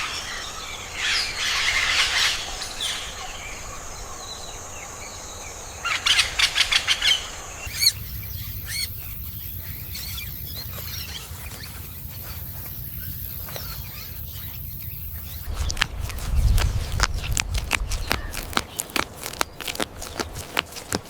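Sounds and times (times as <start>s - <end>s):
faint bird chirps: 0.3s - 20.5s
rapid bird calls: 5.9s - 21.0s.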